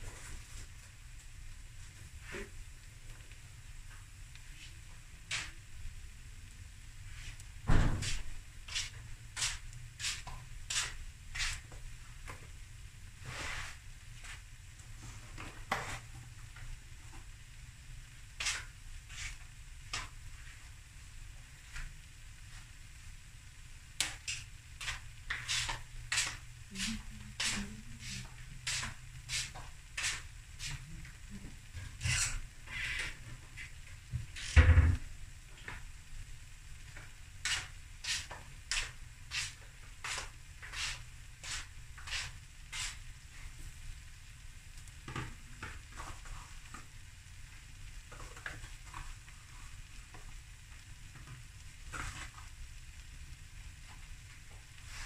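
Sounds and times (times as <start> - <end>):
fried rice sizzling in pan: 0.0 - 55.0
sharp pops and crackles: 3.1 - 5.7, 18.3 - 20.6, 23.8 - 31.2, 36.8 - 43.8
loud thump: 7.6 - 8.2, 34.6 - 35.0.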